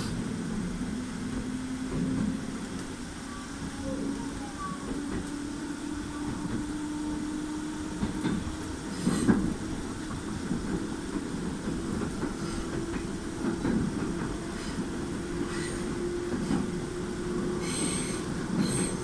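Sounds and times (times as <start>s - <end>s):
electric train hum: 0.0s - 19.0s
train wheels rumbling: 0.0s - 19.0s
wheels clacking over rail joints: 8.0s - 19.0s.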